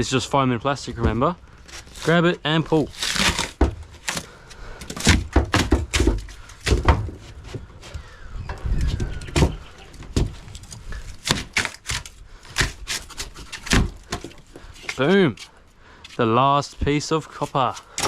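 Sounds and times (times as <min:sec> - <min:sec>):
foam crackling: 0:01.7 - 0:03.6
knocks and thuds: 0:03.5 - 0:03.9, 0:04.9 - 0:07.7, 0:08.5 - 0:10.6.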